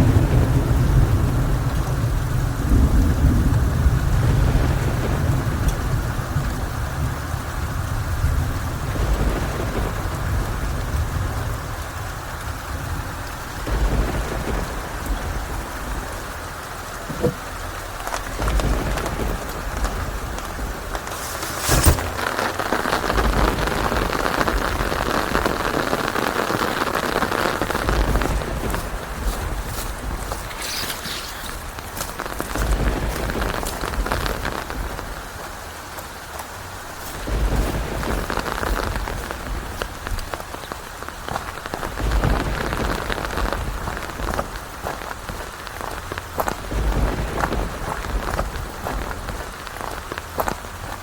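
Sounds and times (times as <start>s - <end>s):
low rolling thunder: 0.0s - 11.8s, 12.6s - 16.4s, 18.0s - 30.5s, 31.4s - 35.4s, 37.2s - 40.6s, 41.6s - 49.6s
steady rain falling: 0.0s - 51.0s
sharp thunder cracks: 32.4s - 35.0s.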